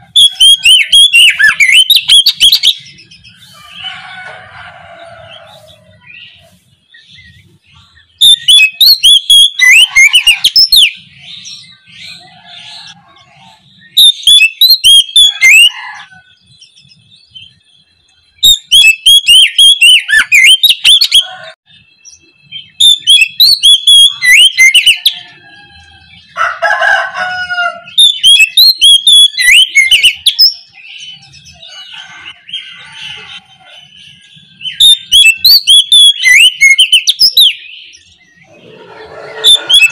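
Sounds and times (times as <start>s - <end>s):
magpie-robin singing: 0.0s - 3.8s, 5.3s - 15.7s, 16.3s - 26.4s, 27.8s - 38.6s, 39.4s - 39.9s
bird low call: 27.7s - 39.9s.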